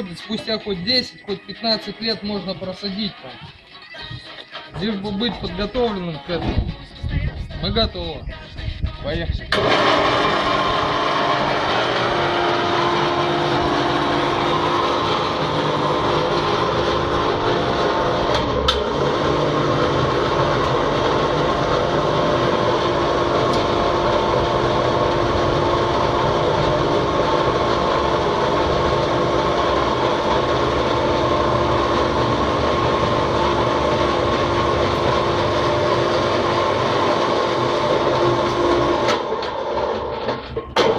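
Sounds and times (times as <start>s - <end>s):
engine droning steadily: 9.5s - 40.9s.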